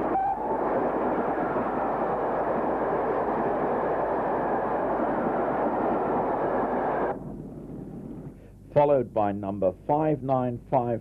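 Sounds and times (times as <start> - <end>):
steam train rushing rumble: 0.0 - 7.5.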